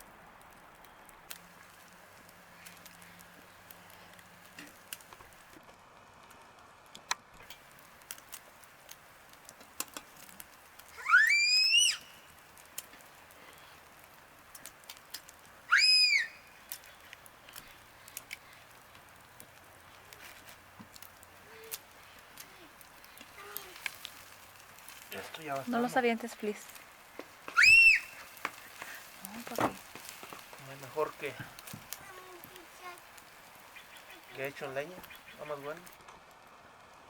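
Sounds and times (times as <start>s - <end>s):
loud whistled calls: 11.0s - 12.4s, 15.7s - 17.1s, 27.5s - 29.0s.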